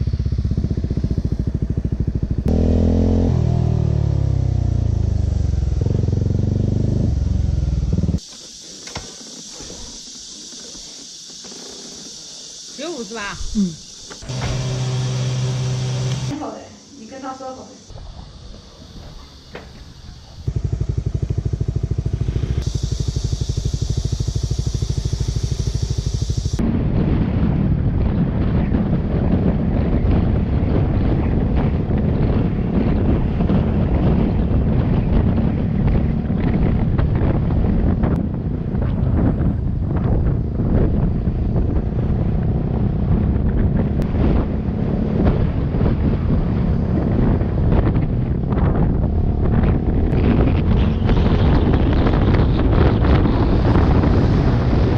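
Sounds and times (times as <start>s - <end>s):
motorcycle engine idling: 0.0s - 8.7s, 19.4s - 26.6s
wind rushing over microphone: 17.8s - 54.9s.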